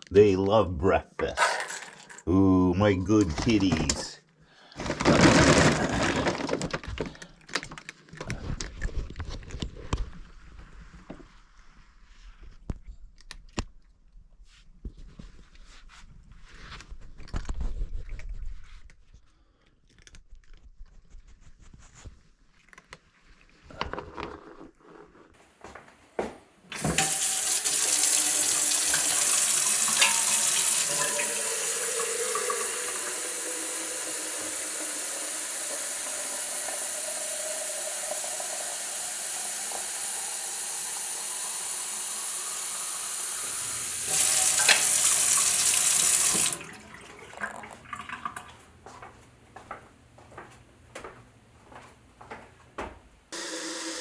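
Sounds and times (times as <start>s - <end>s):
water running into a sink: 26.6s - 48.7s, 53.4s - 54.0s.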